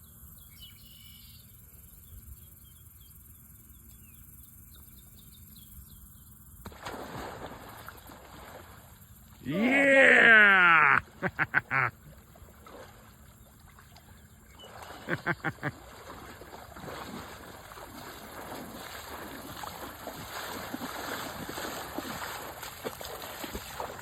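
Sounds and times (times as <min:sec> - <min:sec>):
floodwater splashing: 0:06.6 - 0:24.0
short calls: 0:09.4 - 0:11.9.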